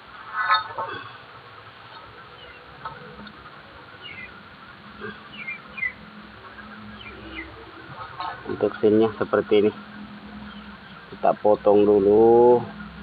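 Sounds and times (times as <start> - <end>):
small bird chirping: 1.9 - 2.7, 4.0 - 4.4, 5.0 - 7.6, 10.3 - 11.2.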